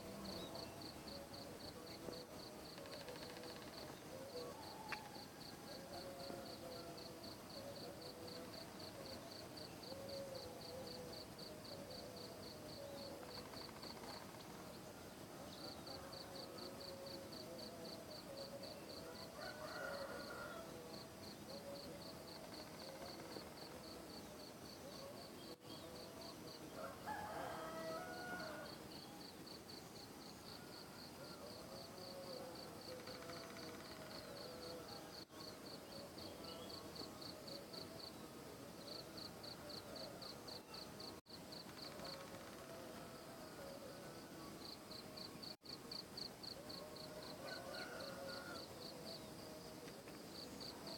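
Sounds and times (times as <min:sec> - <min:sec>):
distant rooster crowing: 0:03.1 - 0:07.1, 0:19.0 - 0:21.0, 0:26.7 - 0:28.9, 0:46.7 - 0:49.2.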